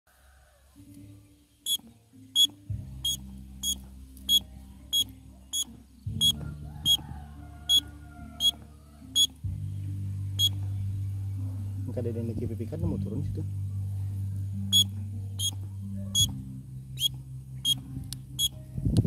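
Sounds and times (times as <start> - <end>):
bird whistle peeps: 1.6 - 1.8, 2.4 - 7.0, 9.2 - 9.4, 10.4 - 10.6, 14.7 - 16.4, 17.0 - 17.8.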